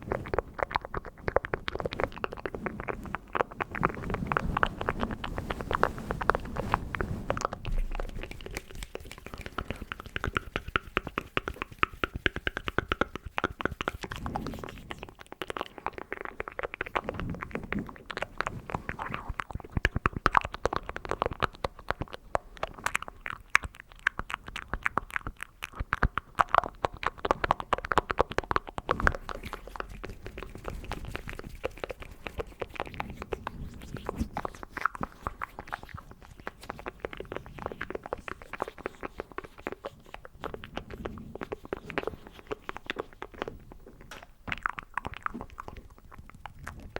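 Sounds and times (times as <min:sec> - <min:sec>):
hand sounds: 0:00.0 - 0:19.4
wet mouth clicks and smacks: 0:00.0 - 0:46.9.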